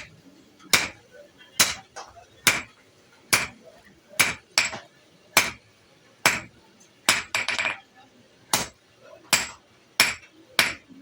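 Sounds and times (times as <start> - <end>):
hammer striking metal on anvil: 0.7 - 1.0, 3.3 - 3.6, 4.2 - 4.8, 5.4 - 5.6, 6.2 - 6.5, 8.5 - 10.9.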